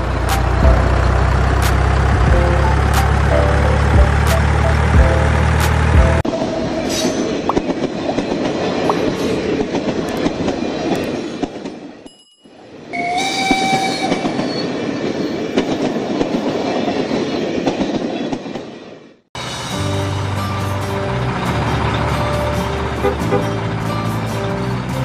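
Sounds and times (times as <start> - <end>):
truck engine rumble: 0.0 - 6.3, 19.4 - 25.0
train whistle: 12.9 - 14.7.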